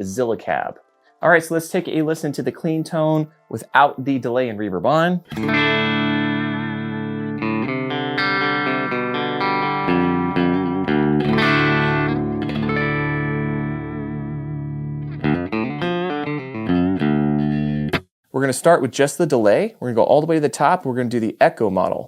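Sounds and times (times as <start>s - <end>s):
clean electric guitar chords: 5.3s - 18.0s.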